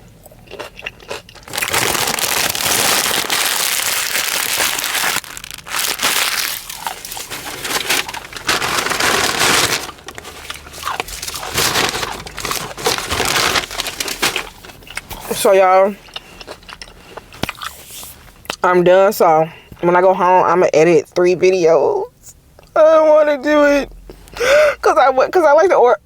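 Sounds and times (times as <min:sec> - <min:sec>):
food wrapping crinkling: 0:00.5 - 0:18.4.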